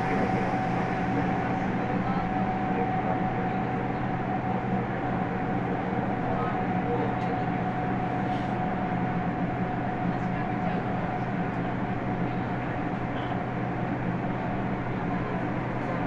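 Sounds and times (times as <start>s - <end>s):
steady high whine: 0.0s - 7.0s
train equipment humming: 0.0s - 16.0s
underground station noise: 0.0s - 16.0s.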